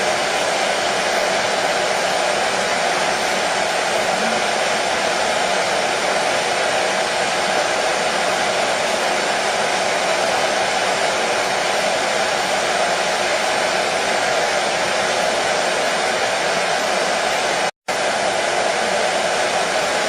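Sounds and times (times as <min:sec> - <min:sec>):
hair dryer blowing: 0:00.0 - 0:20.0.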